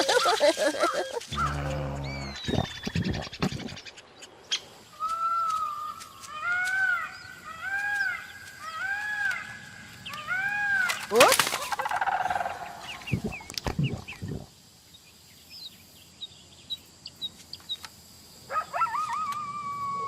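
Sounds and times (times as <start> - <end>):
animal calls: 0.0 - 3.8.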